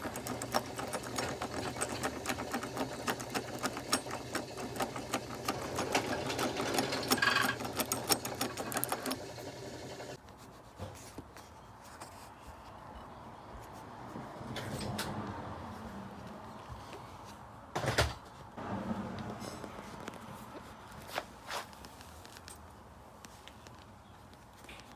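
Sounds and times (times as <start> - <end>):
two-stroke engine clattering: 0.0 - 10.2.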